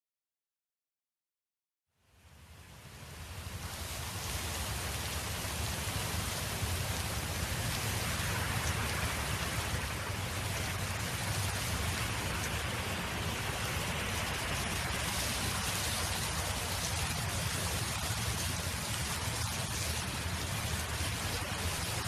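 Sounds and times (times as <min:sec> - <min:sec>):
wind blowing: 0:02.5 - 0:22.0.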